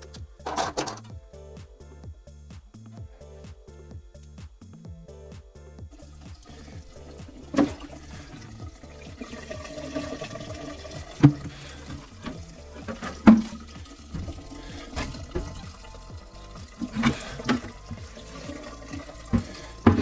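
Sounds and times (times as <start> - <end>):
water running: 5.9 - 20.0.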